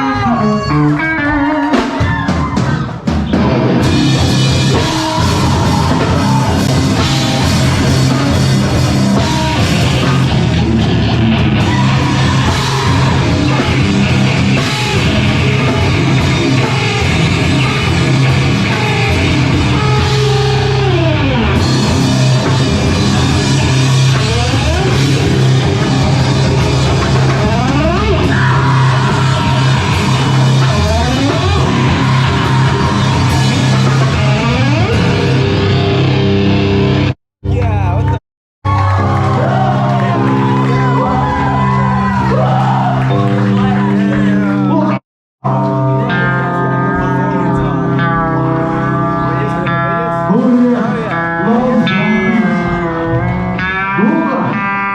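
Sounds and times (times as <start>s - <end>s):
bass guitar: 0.0s - 54.9s
distorted electric guitar: 0.0s - 54.9s
drum kit with cymbals: 1.7s - 36.1s.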